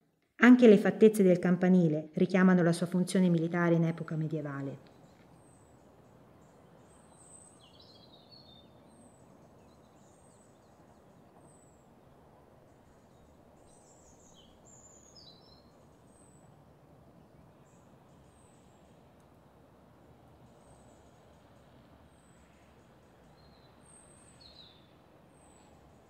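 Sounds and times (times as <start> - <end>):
small birds chirping: 3.9 - 16.5, 20.4 - 26.0.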